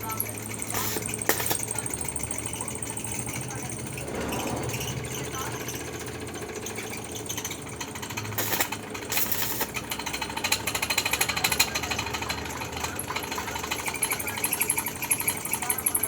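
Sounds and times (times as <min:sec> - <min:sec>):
welding arc crackling: 0:00.0 - 0:03.9, 0:07.4 - 0:16.0.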